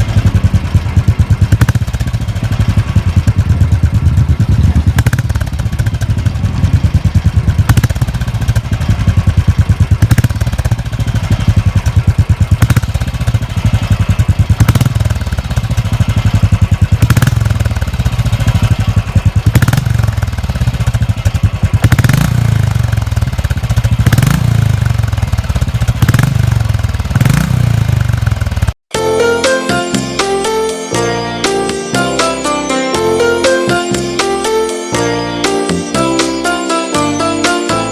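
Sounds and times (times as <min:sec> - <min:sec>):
motorcycle engine throttle blips: 0:00.0 - 0:28.8
music: 0:28.9 - 0:37.9.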